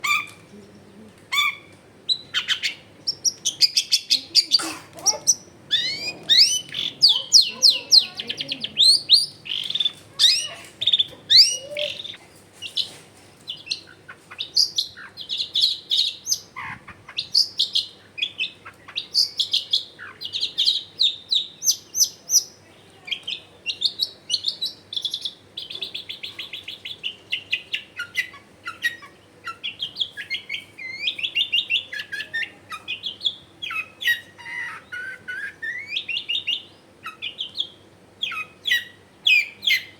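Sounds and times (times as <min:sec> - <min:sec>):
shrike singing chattering trills: 0:00.0 - 0:12.9.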